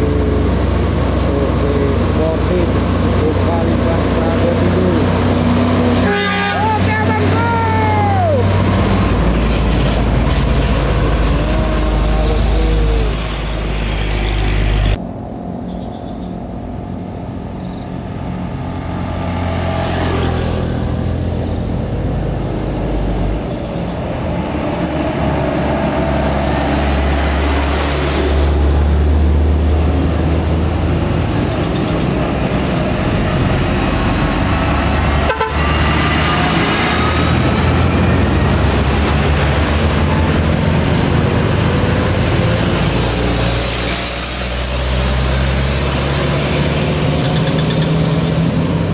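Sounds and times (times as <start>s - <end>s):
diesel truck engines droning: 0.0s - 48.9s
truck horn: 5.9s - 7.4s, 15.6s - 16.4s, 35.1s - 36.6s.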